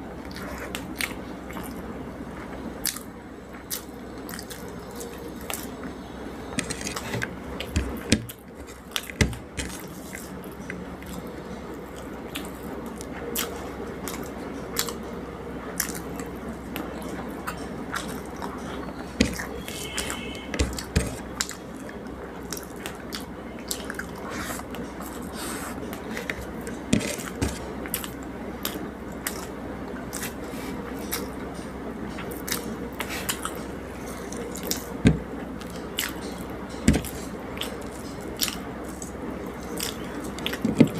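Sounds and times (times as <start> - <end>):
person chewing: 11.9 - 15.0, 22.5 - 31.4, 32.2 - 40.9.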